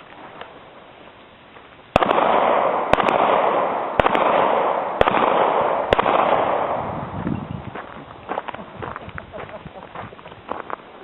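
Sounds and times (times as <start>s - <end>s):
pistol shots with echo: 1.9s - 7.1s.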